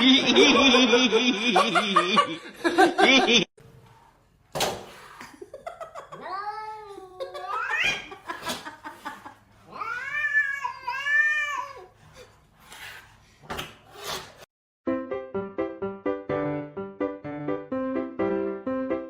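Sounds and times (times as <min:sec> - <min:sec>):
piano music: 0:14.9 - 0:19.0.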